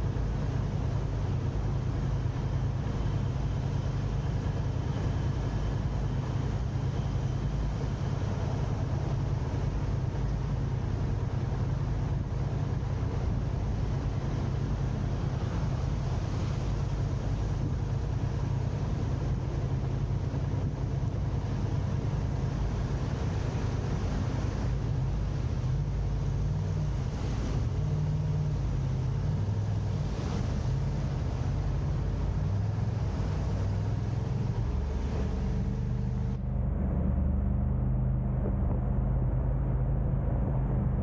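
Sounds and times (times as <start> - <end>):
car engine humming: 0.0 - 41.0
road noise: 0.0 - 41.0.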